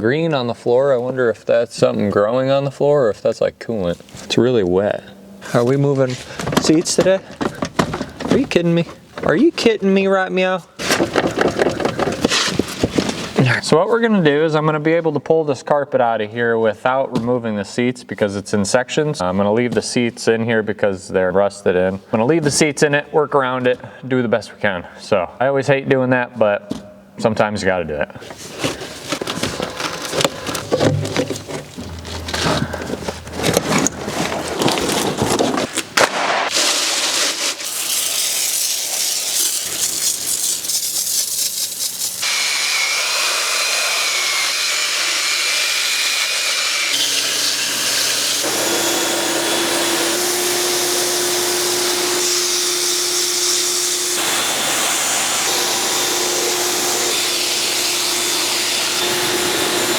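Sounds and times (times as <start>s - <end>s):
scraping and knocking: 10.8s - 13.4s, 28.3s - 35.9s
cleaning machine whining: 42.2s - 59.9s.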